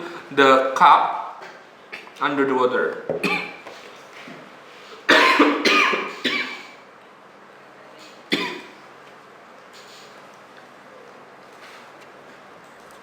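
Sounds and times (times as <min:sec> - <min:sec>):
person coughing: 0:03.2 - 0:03.6, 0:05.1 - 0:06.8, 0:08.3 - 0:08.8.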